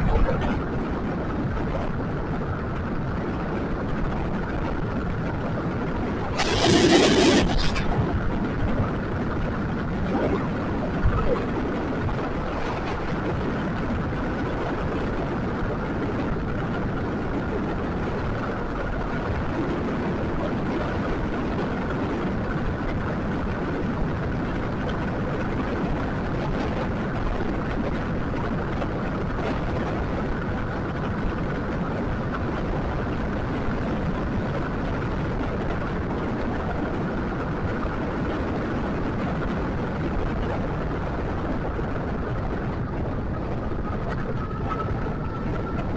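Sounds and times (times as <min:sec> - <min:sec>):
faint high whine: 0:06.2 - 0:08.4.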